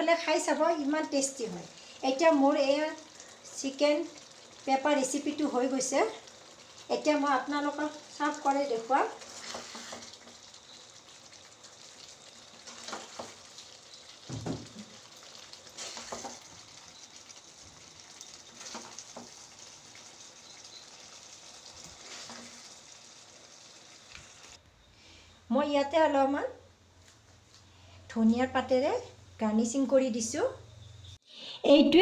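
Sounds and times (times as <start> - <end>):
chicken sizzling in a pan: 0.0 - 24.6.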